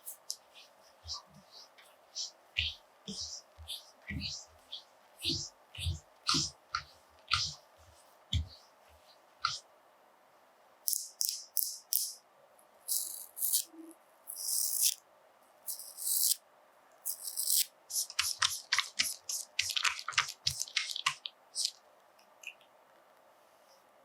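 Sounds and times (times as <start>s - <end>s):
hissy strokes on rind: 0.0s - 8.6s, 17.1s - 21.7s.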